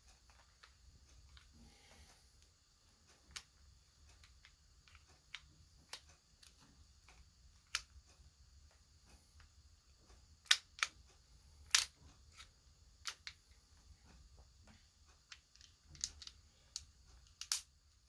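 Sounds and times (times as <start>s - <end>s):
metallic clicks of pistol parts: 11.7s - 13.4s, 15.3s - 17.7s.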